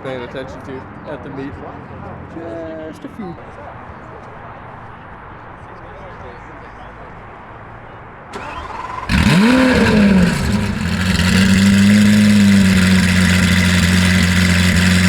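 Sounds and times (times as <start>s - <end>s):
car engine starting and idling: 8.3s - 15.0s.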